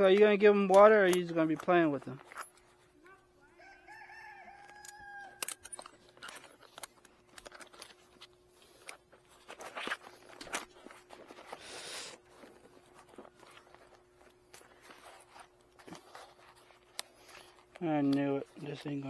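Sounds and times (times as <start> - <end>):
rooster crowing: 3.6 - 5.9.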